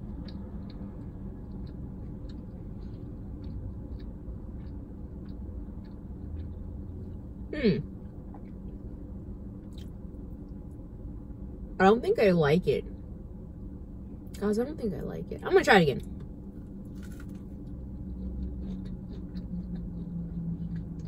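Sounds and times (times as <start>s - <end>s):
chewing with wet mouth clicks: 0.0s - 7.3s, 9.6s - 10.6s, 17.0s - 21.0s
low steady hum: 0.0s - 21.0s
person humming hmm: 7.5s - 7.9s.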